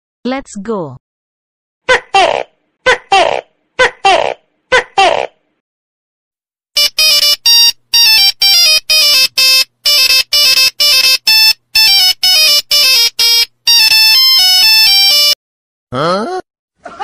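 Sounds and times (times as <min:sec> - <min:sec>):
electronic beeping tune: 0:06.8 - 0:15.4.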